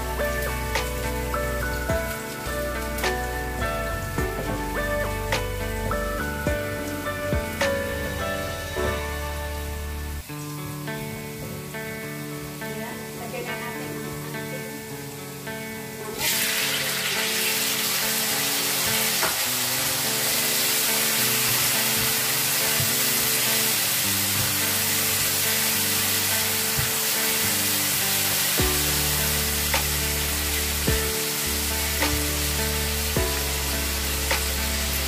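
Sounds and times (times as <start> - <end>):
chicken sizzling in a wok: 0.0 - 35.0.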